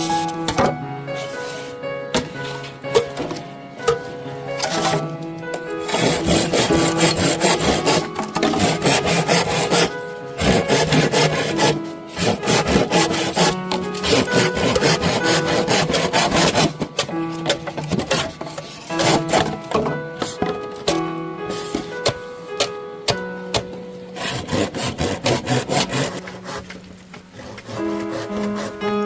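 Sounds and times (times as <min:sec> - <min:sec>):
background music: 0:00.0 - 0:29.0
rapid rasping strokes: 0:05.8 - 0:19.6, 0:24.2 - 0:28.9.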